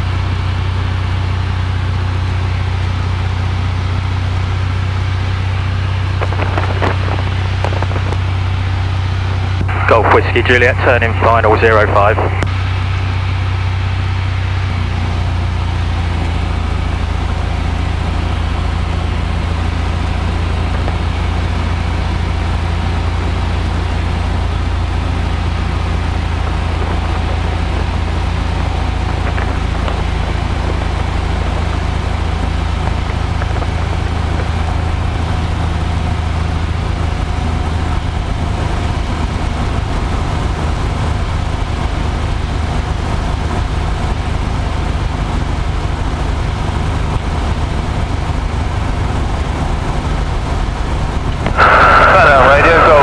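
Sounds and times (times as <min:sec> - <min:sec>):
propeller plane engine droning: 0:00.0 - 0:53.0.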